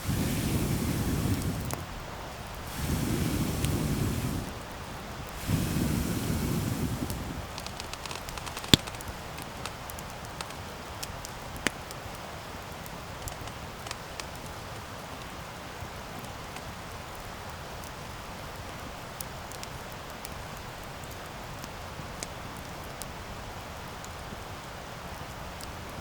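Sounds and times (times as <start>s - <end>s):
campfire hissing and crackling: 0.0s - 26.0s
sharp fire pop: 2.7s - 4.6s, 5.3s - 9.0s.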